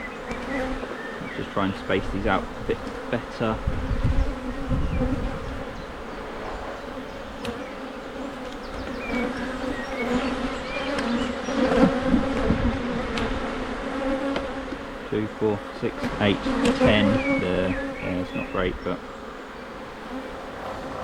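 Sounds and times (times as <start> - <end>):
bees buzzing: 0.0 - 21.0
wooden hive frames knocking: 0.2 - 5.6, 10.9 - 15.1, 15.9 - 18.9.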